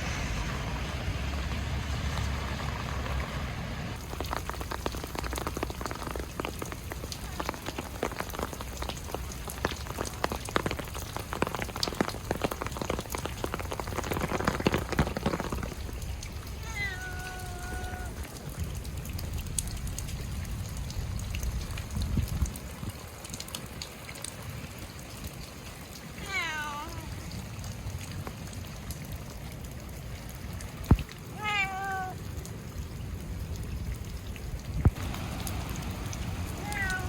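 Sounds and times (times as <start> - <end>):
rain hissing: 0.0 - 37.0
cat meowing: 16.6 - 18.2, 26.2 - 27.1, 31.4 - 32.2, 36.6 - 37.0.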